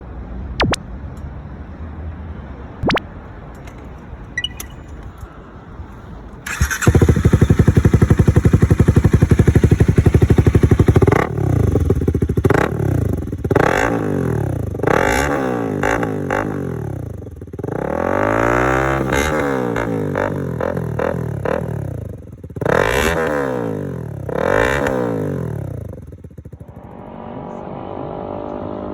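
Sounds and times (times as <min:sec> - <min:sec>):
motorcycle engine starting and idling: 0:03.5 - 0:27.3
motorcycle engine revving: 0:06.4 - 0:28.9.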